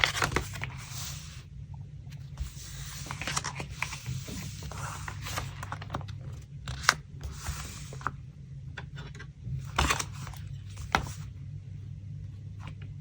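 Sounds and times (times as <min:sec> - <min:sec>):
paper rustling and crinkling: 0:00.0 - 0:01.4, 0:02.1 - 0:08.1, 0:09.6 - 0:11.3.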